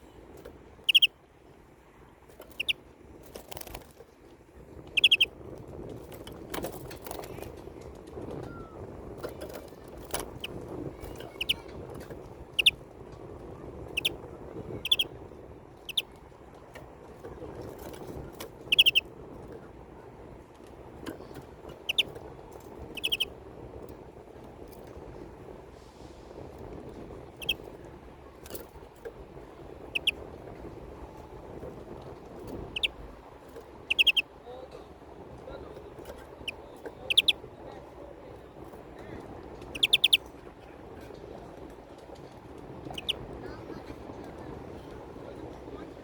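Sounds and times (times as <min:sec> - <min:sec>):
finch chirping: 0:00.8 - 0:01.1, 0:02.4 - 0:02.8, 0:05.0 - 0:05.3, 0:09.5 - 0:11.7, 0:12.5 - 0:12.8, 0:13.9 - 0:15.1, 0:15.8 - 0:16.1, 0:18.6 - 0:19.0, 0:21.7 - 0:22.1, 0:22.8 - 0:23.3, 0:27.3 - 0:27.7, 0:29.8 - 0:30.2, 0:32.5 - 0:33.0, 0:33.8 - 0:34.2, 0:36.2 - 0:37.4, 0:39.7 - 0:40.2, 0:42.9 - 0:43.2.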